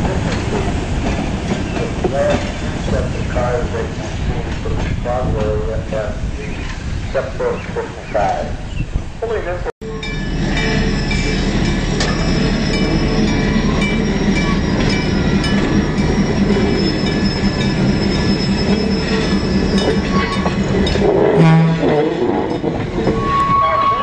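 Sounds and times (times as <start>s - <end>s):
trolley wheels squealing: 9.9s - 24.0s.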